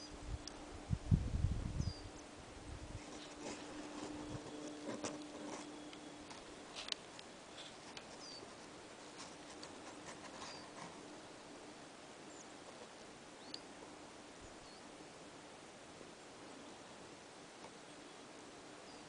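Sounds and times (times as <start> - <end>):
faint outdoor hiss: 0.0 - 19.0
small birds chirping: 1.8 - 2.3, 3.1 - 11.0, 12.2 - 13.8, 14.4 - 15.2, 16.5 - 19.0.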